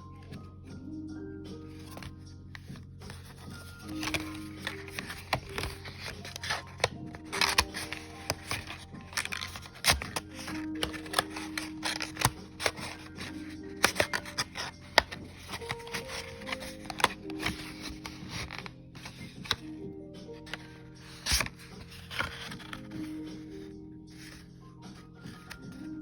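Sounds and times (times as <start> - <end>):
stationery and packaging rustling: 0.0 - 0.7, 1.6 - 26.0
soft background music: 0.0 - 26.0.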